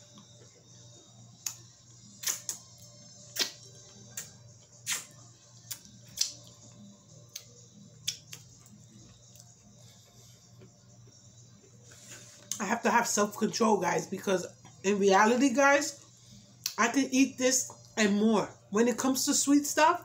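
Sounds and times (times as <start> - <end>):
wet mouth clicks chewing: 7.3 - 8.8.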